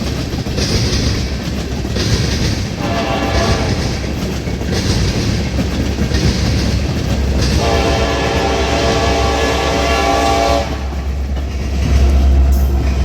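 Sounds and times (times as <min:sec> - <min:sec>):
train wheels rumbling and clattering: 0:00.0 - 0:13.0
locomotive air horn: 0:02.8 - 0:03.9, 0:07.6 - 0:11.1.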